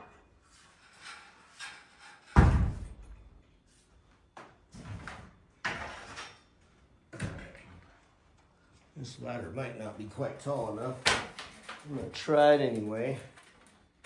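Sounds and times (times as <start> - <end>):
ladder knocks and clatters: 0.9 - 3.2.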